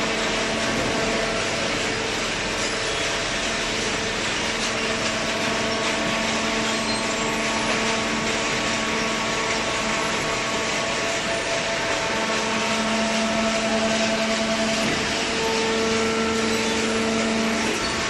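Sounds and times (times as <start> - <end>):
hydraulic baler running: 0.0 - 18.0
hydraulic pump hum: 0.0 - 18.0.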